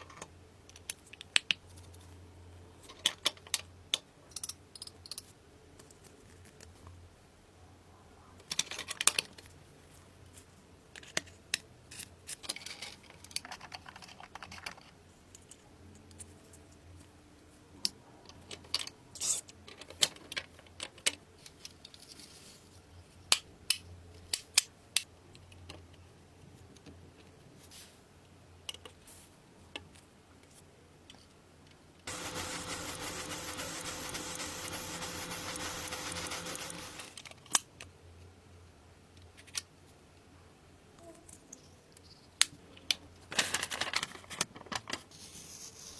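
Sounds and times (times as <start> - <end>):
steady hiss: 32.1 - 37.1.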